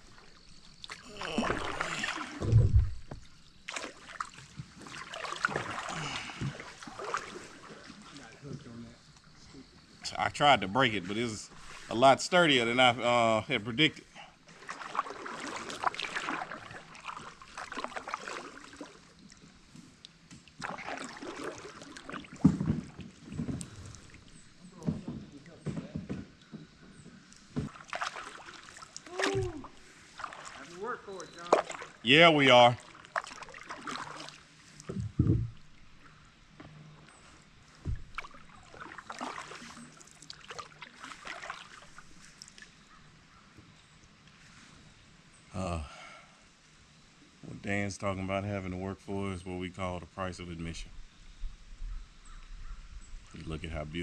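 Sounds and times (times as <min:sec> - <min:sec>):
paddle splashing water: 0:00.0 - 0:45.2
dull thump: 0:02.4 - 0:03.4, 0:34.9 - 0:35.6, 0:37.8 - 0:38.3.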